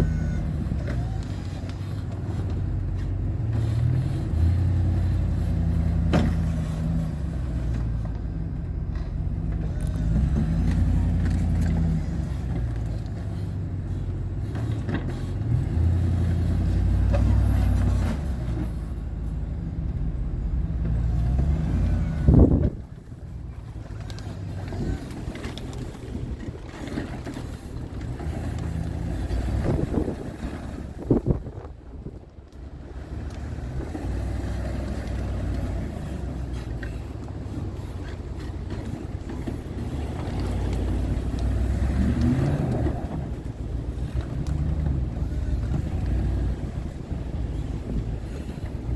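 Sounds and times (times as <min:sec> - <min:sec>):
truck engine running: 0:00.0 - 0:48.9.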